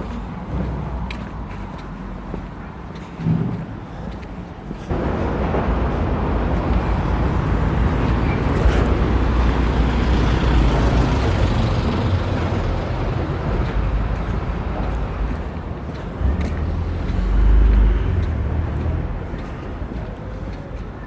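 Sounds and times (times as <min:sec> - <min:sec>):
vehicle engine and tyres passing: 0:04.9 - 0:21.0.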